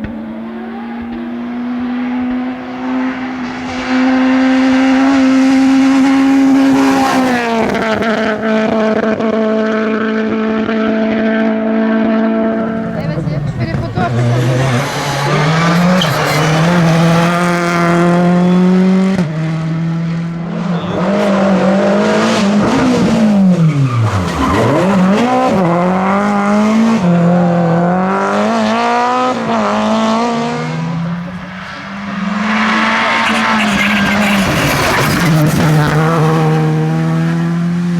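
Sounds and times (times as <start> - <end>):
rally car engine revving: 0.0 - 37.9
tyres squealing: 12.5 - 18.7, 30.9 - 36.4.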